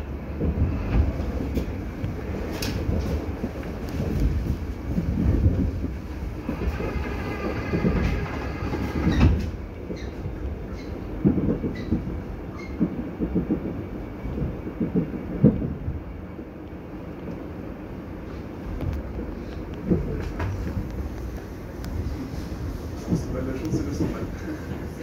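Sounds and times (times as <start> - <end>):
train rumbling on rails: 0.0 - 25.0
train whine: 0.0 - 25.0
wheel clacks over rail joints: 5.3 - 13.7.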